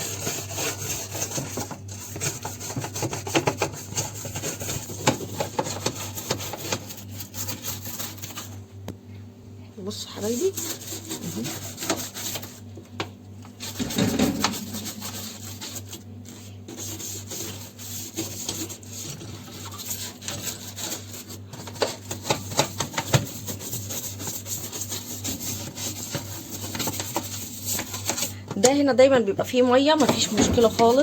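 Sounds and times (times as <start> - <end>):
steady low hum: 6.2 - 17.8
scraping inside dishwasher: 13.5 - 16.0, 29.9 - 31.0.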